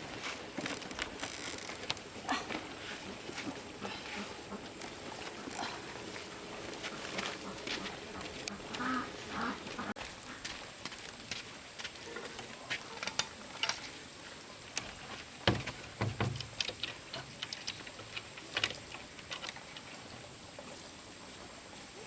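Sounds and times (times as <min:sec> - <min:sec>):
dull knocks: 0:15.4 - 0:16.7.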